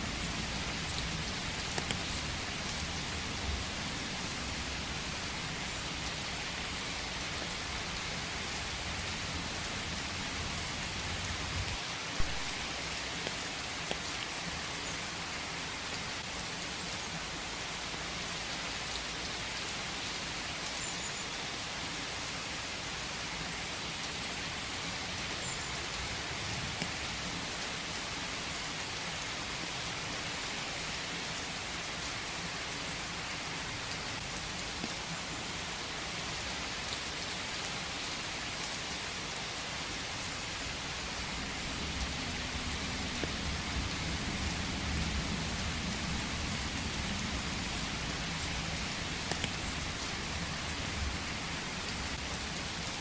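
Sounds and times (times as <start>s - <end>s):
rain falling in forest: 0.0s - 53.0s.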